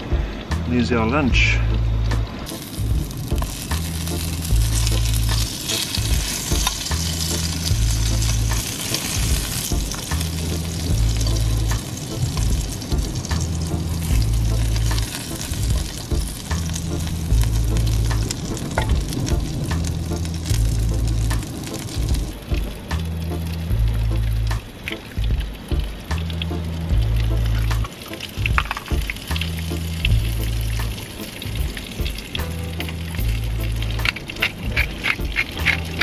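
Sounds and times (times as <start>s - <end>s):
bass line background music: 0.0s - 36.0s
fish fingers sizzling in a pan: 2.5s - 21.9s, 27.3s - 36.0s
fork clicking against a pan: 34.0s - 36.0s.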